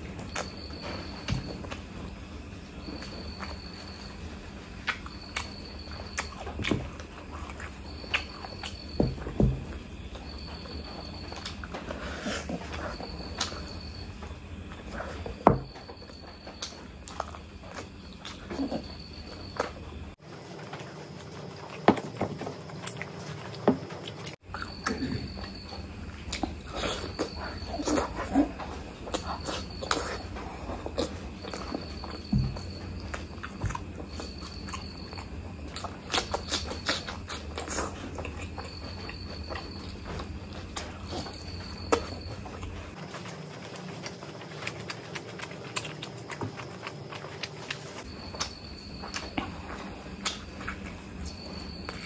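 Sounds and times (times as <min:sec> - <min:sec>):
wet chewing: 0:21.2 - 0:52.0.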